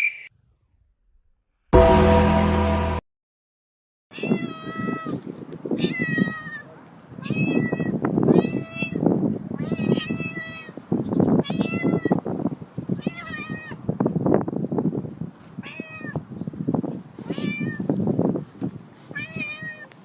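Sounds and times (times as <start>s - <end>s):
cat meowing: 4.2s - 5.2s, 5.8s - 9.0s, 11.4s - 12.2s, 13.0s - 13.8s, 15.6s - 16.2s, 17.2s - 17.9s, 19.1s - 19.9s.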